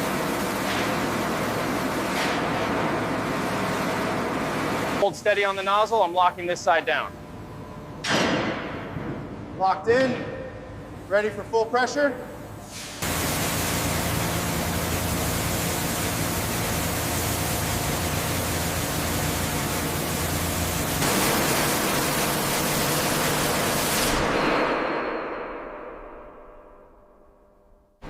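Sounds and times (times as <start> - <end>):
pressure washer spray hissing: 12.7 - 24.2
pump humming: 13.0 - 23.9.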